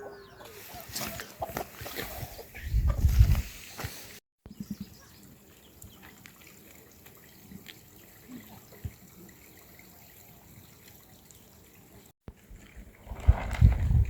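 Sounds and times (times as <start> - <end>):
faint water dripping: 4.5 - 12.8.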